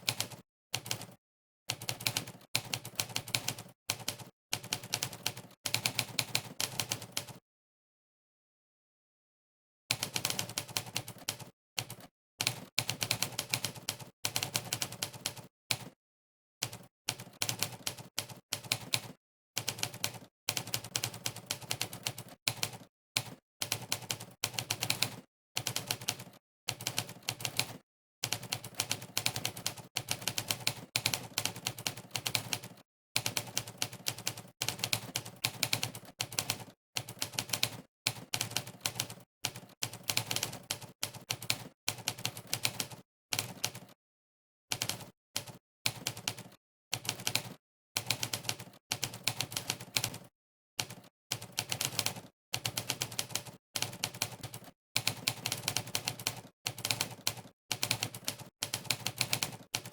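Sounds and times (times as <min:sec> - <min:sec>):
typewriter keystroke clacks: 0:44.8 - 0:59.9.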